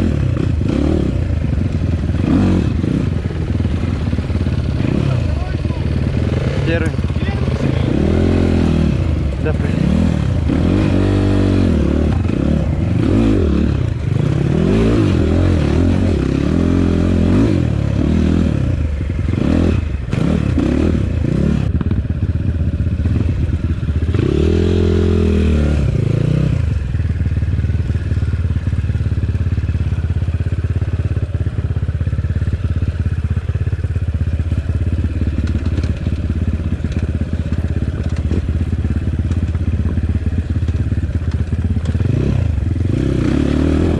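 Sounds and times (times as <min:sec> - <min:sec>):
motorcycle engine revving: 0:00.0 - 0:43.9
clattering and scraping from bike: 0:34.5 - 0:42.2.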